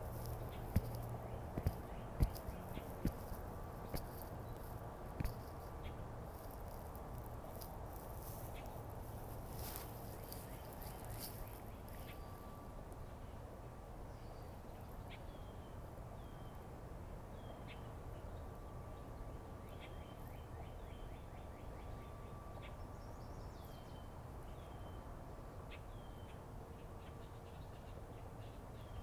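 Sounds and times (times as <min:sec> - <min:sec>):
birds chirping: 0:00.0 - 0:06.8.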